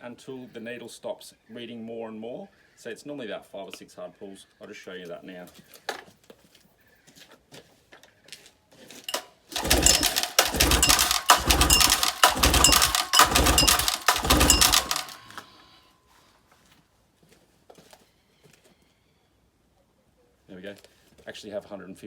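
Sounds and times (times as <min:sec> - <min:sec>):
engine spinning over without firing: 0:09.1 - 0:15.4
recoil starter rope whirring: 0:09.1 - 0:15.5.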